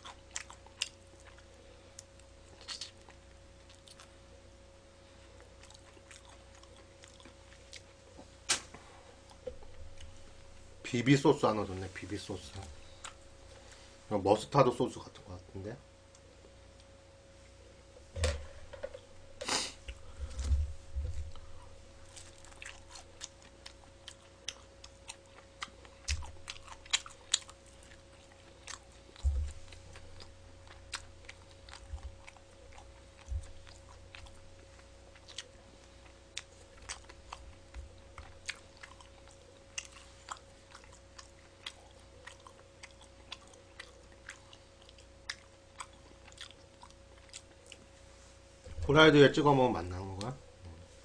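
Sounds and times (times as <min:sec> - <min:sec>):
chewing crunchy food: 0:00.0 - 0:04.2, 0:05.2 - 0:08.3, 0:19.8 - 0:48.0
faint steady hum: 0:00.0 - 0:51.0.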